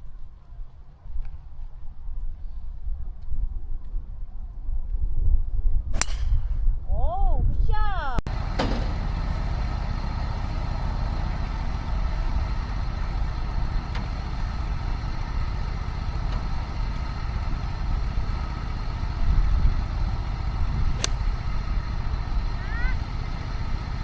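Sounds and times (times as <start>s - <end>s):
golf cart running: 8.3s - 24.0s.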